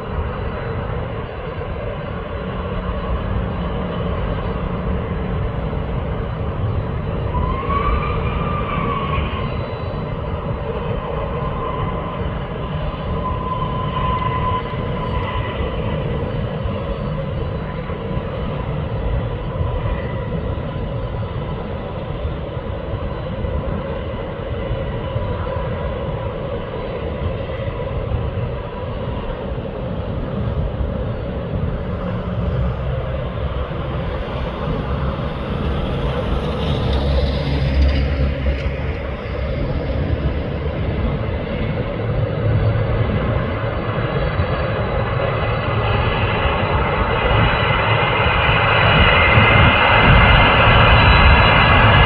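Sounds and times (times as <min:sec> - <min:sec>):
jet engines rumbling: 0:00.0 - 0:52.0
faint high whine: 0:26.6 - 0:48.2.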